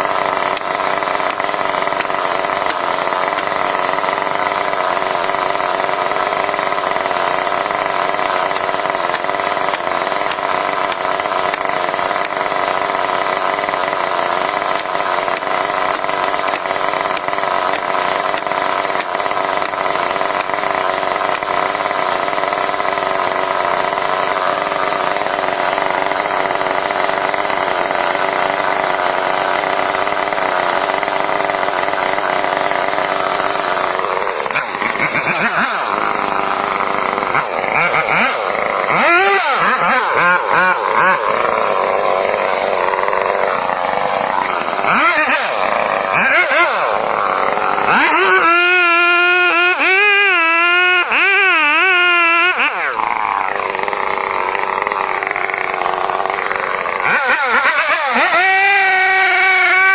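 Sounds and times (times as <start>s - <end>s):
chainsaw engine running: 0.0s - 59.9s.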